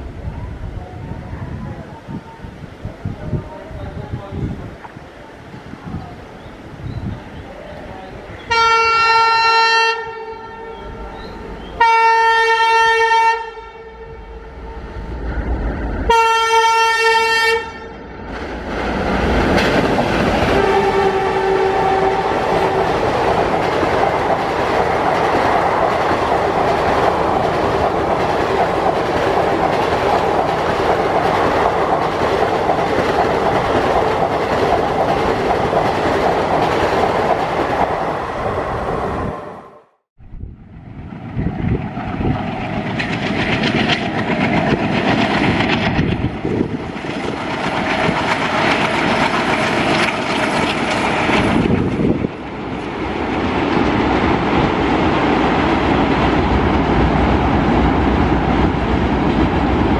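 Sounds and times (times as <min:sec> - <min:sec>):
train passing with wheel clatter: 0:00.0 - 0:59.9
locomotive horn blasts: 0:08.5 - 0:11.1, 0:11.7 - 0:14.7, 0:16.1 - 0:18.0, 0:20.5 - 0:22.9.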